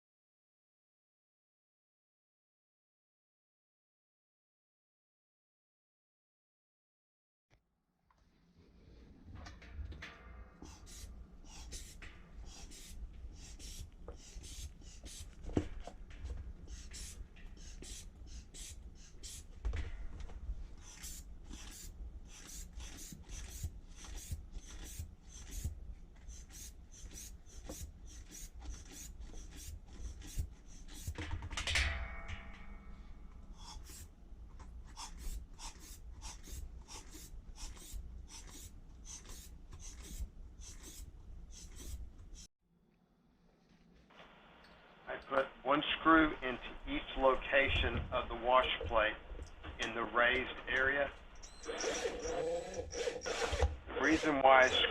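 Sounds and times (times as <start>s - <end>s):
metal tools scraping: 9.5s - 25.7s, 50.8s - 54.9s
brief squeak: 51.4s - 53.7s.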